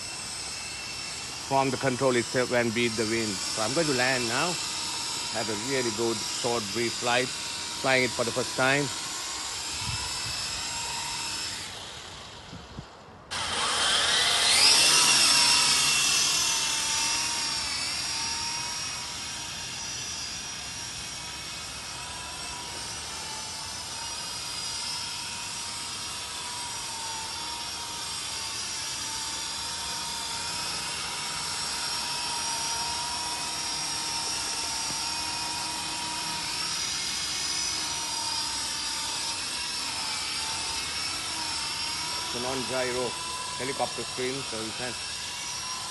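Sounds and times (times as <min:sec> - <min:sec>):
toy helicopter motors whining: 0:00.0 - 0:45.9.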